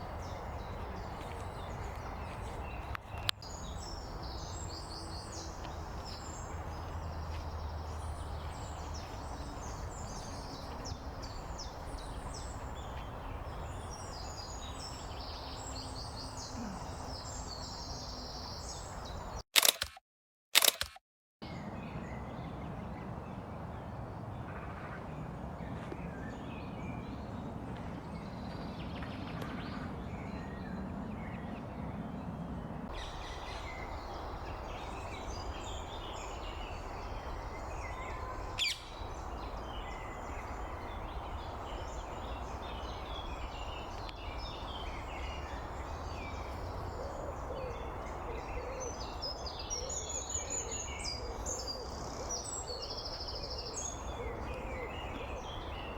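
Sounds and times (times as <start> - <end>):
wild birds chirping: 0.0 - 19.7, 21.4 - 55.9
sharp click: 19.6 - 20.0, 20.6 - 21.0.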